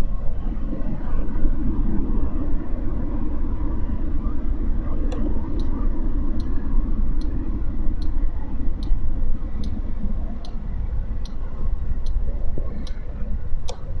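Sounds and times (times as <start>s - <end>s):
wind noise: 0.0s - 14.0s
sharp repeating tick: 6.4s - 9.8s, 10.4s - 13.0s.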